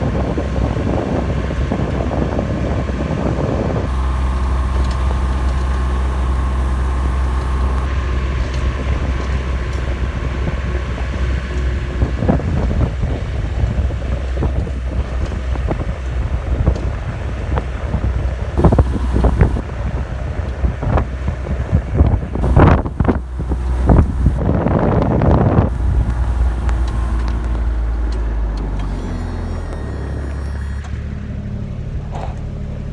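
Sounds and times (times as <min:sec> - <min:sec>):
diesel engine running: 0:03.9 - 0:07.9, 0:18.6 - 0:19.6, 0:22.4 - 0:24.4, 0:25.7 - 0:30.9
wind buffeting microphone: 0:18.6 - 0:19.6, 0:22.4 - 0:24.4, 0:25.7 - 0:29.5.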